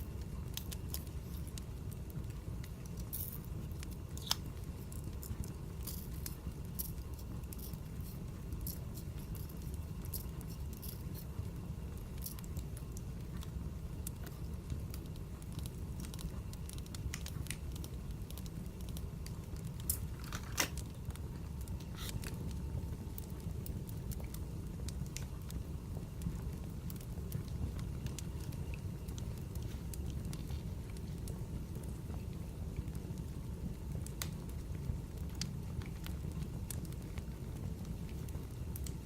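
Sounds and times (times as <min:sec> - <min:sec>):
low fire rumble: 0:00.0 - 0:39.0
wood fire crackling: 0:00.0 - 0:39.0.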